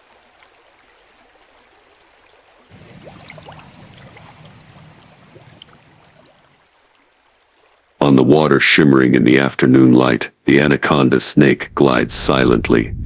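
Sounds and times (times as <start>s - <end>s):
water drips: 0.0s - 8.6s
faint hiss: 2.7s - 6.6s
low rumble: 2.8s - 6.3s.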